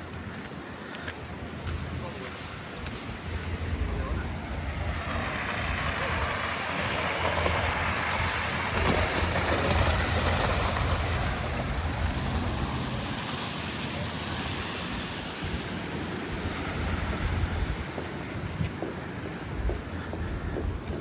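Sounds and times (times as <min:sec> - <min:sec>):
tyres hissing through slush: 0:04.6 - 0:19.1.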